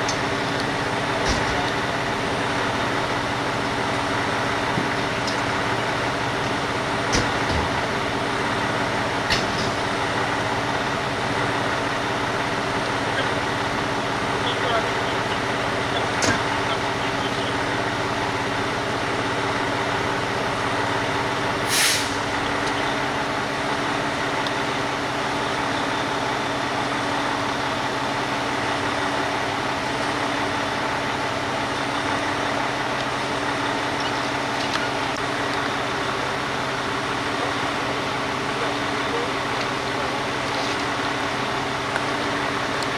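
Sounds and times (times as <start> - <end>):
road noise: 0.0 - 42.9
vehicle engine droning: 0.0 - 42.9
short sharp hiss: 21.7 - 22.2.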